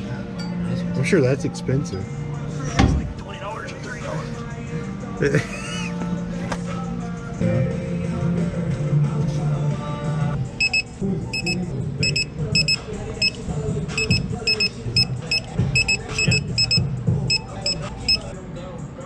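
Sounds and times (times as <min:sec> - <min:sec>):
background music: 0:00.0 - 0:19.0
short high electronic beeps: 0:10.6 - 0:13.4, 0:14.0 - 0:18.3.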